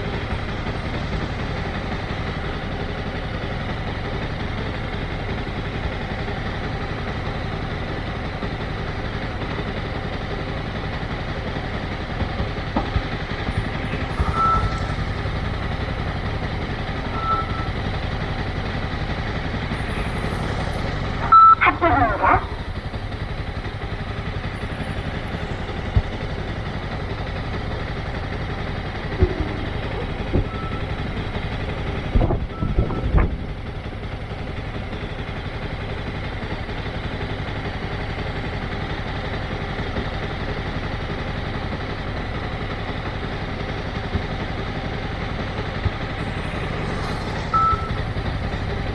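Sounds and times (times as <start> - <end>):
motorcycle engine running: 0.0 - 48.9
short beeps: 13.5 - 16.0, 17.0 - 17.9, 21.2 - 21.8, 29.2 - 31.0, 46.1 - 48.7.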